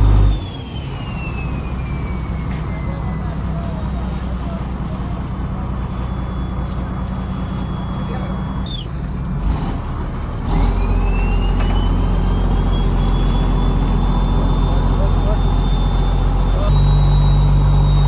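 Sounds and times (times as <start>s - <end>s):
engine whine rising in pitch: 0.0s - 8.8s, 9.4s - 18.0s
diesel engine running: 0.0s - 18.0s.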